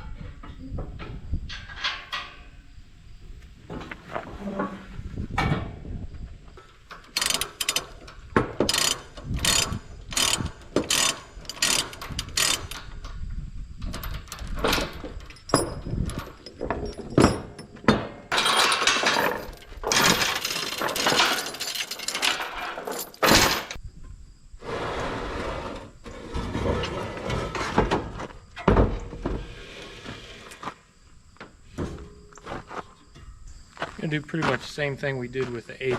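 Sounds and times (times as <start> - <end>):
rattling scraping noise: 6.6 - 23.8, 24.6 - 28.3
ratchet tie-down clicking: 7.0 - 8.0, 8.6 - 12.8.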